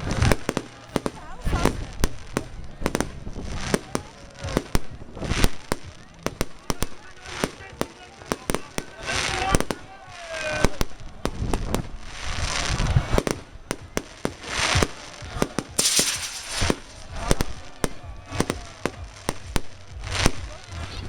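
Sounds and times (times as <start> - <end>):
firecrackers banging: 0.0 - 9.8, 10.5 - 20.8
fireworks hissing: 10.6 - 20.4.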